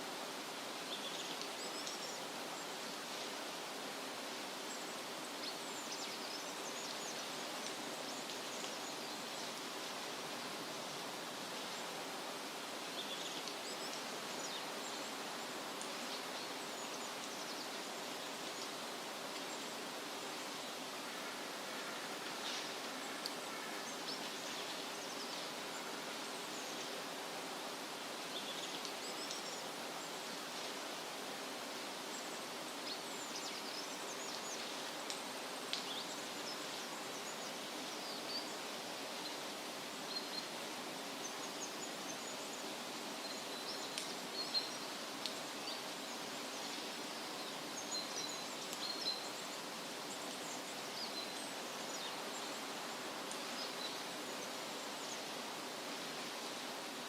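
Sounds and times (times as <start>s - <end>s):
wind rustling through trees: 0.0s - 57.0s.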